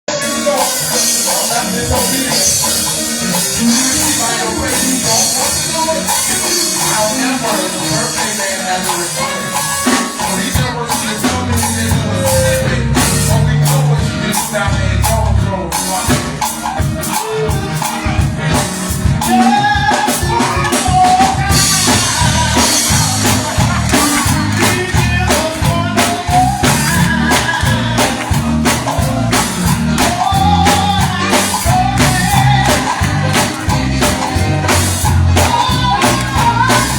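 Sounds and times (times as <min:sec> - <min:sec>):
drum kit: 0:00.1 - 0:36.9
voices singing: 0:00.1 - 0:36.9
bass: 0:09.8 - 0:36.9.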